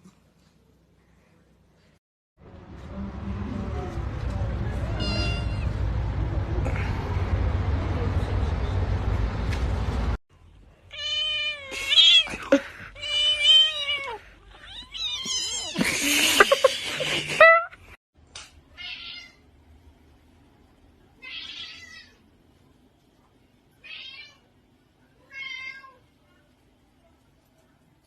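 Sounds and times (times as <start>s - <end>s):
cat meowing: 4.9s - 5.8s.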